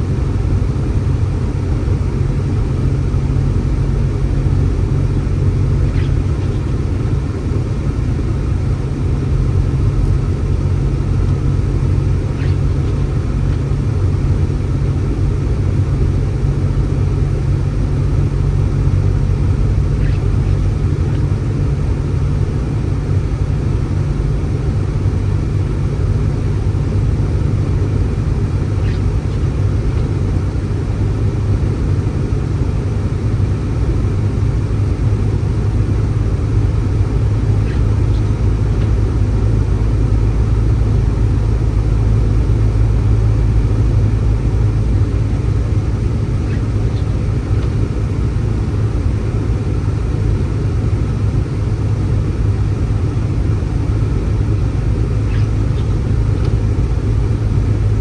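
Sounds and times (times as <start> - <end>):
steady low rumble: 0.0 - 58.0.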